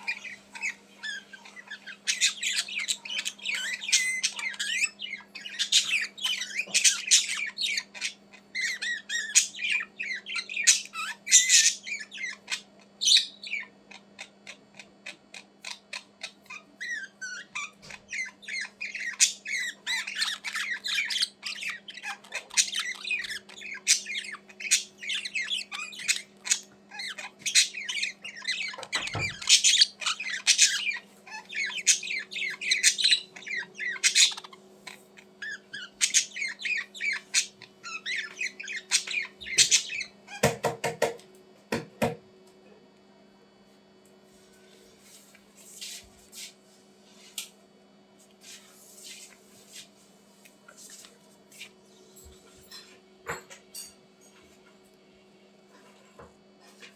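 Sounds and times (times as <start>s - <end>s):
budgerigars chattering and squawking: 0.0s - 40.9s
faint steady hum: 0.0s - 56.9s.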